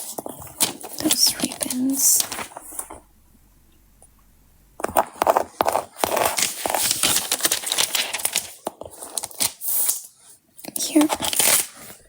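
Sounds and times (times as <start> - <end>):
sticker paper crinkling and tapping: 0.0 - 3.1, 3.7 - 10.0.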